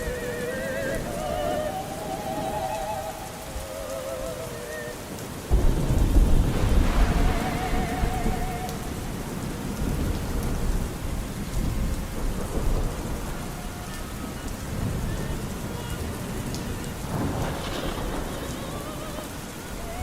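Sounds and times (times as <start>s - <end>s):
muffled opera singing: 0.0s - 10.4s, 12.7s - 20.0s
rolling thunder rumble: 0.0s - 20.0s
steady rain: 0.0s - 20.0s.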